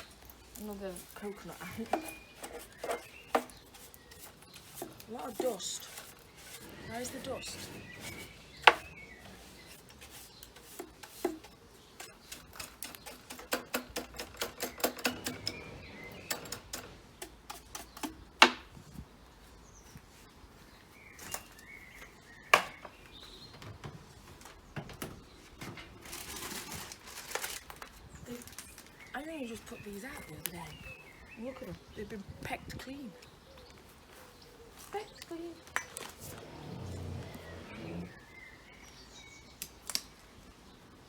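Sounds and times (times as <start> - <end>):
rustle: 0.0 - 13.5, 15.1 - 31.9, 33.1 - 41.0
bird feeders clattering: 0.0 - 18.3, 35.7 - 38.2.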